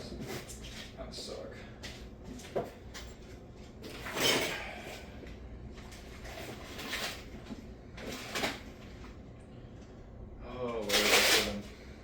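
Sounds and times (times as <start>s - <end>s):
tools clattering and rustling: 0.0s - 5.2s, 5.8s - 9.2s.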